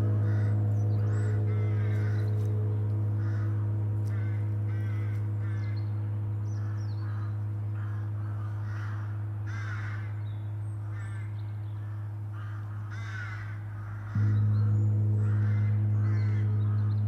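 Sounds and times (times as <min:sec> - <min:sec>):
gong ringing: 0:00.0 - 0:08.2, 0:14.1 - 0:17.0
crows cawing: 0:00.0 - 0:17.0.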